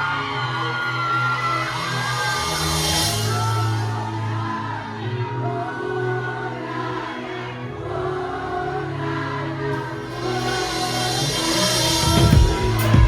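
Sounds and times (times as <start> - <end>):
gospel choir singing with band: 0.0 - 13.0
low bass notes: 9.9 - 13.0.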